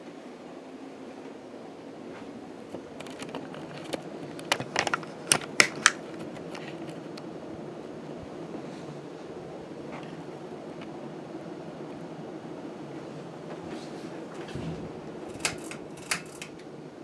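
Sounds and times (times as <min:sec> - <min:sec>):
ceiling fan motor hum: 0:00.0 - 0:17.0
sharp clicks and ticks: 0:15.2 - 0:16.6.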